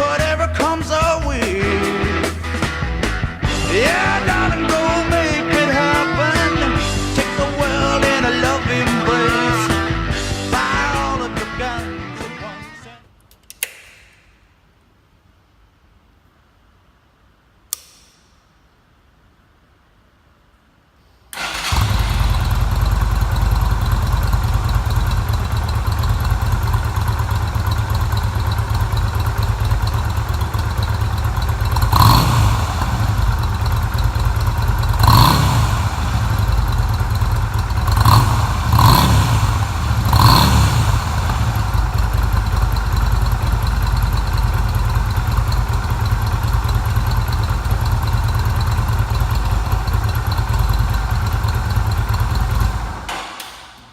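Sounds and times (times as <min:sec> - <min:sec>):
motorcycle engine idling: 0:21.4 - 0:53.2.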